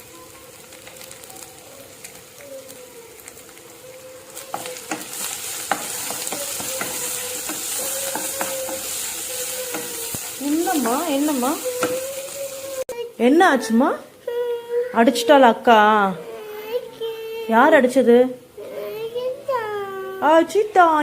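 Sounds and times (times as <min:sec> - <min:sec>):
masala sizzling in hot oil: 0:00.0 - 0:13.4
spatula scraping a pan: 0:04.5 - 0:12.8.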